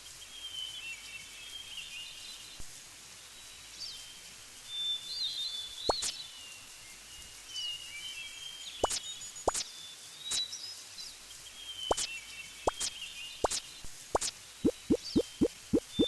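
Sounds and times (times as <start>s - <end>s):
sharp plop-like strokes: 12.7s - 13.6s, 14.2s - 16.0s
birds chirping: 14.7s - 16.0s.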